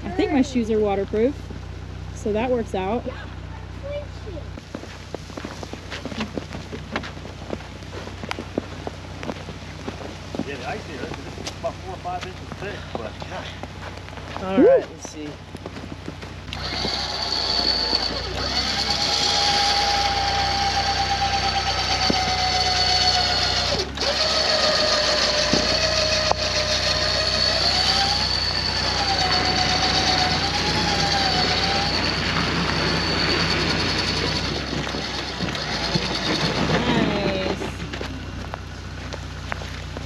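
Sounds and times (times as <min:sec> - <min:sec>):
electric winch motor whine: 0:16.5 - 0:38.0.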